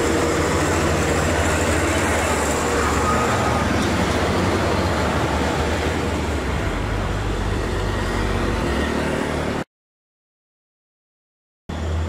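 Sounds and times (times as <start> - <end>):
diesel truck engine under load: 0.0 - 7.8
slow traffic: 0.0 - 9.6.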